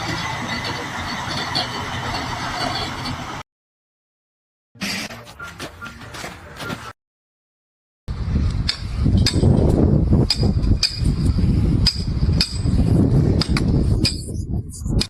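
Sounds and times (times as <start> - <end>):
low rumble of work noise: 0.0 - 3.4, 8.1 - 15.0.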